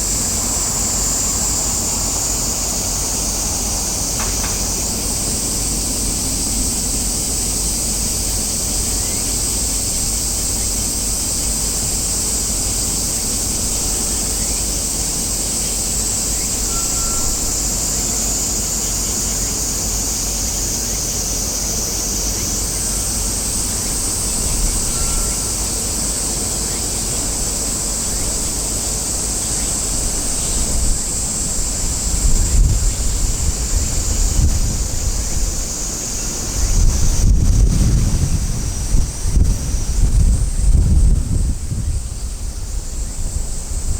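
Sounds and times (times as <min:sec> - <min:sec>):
high-pitched hiss: 0:00.0 - 0:43.9
wind rumble on microphone: 0:27.2 - 0:43.9.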